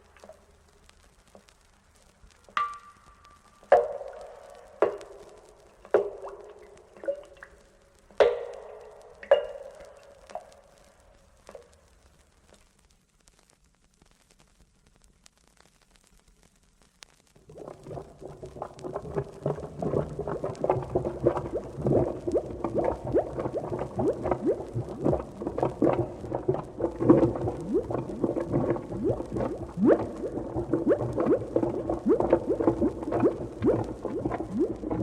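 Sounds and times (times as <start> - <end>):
thick liquid bubbling: 3.3 - 12.3, 17.3 - 35.0.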